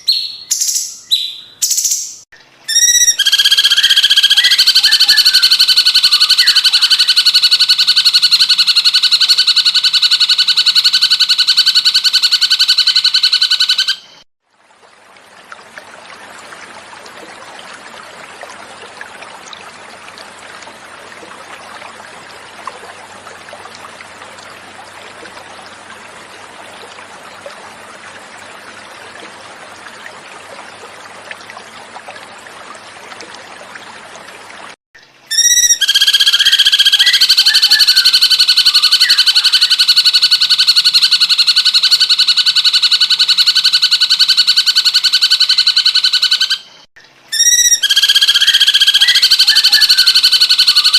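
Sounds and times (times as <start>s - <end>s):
repeated bird song recording: 0.0s - 14.2s, 35.0s - 50.9s
water flowing: 14.0s - 38.1s.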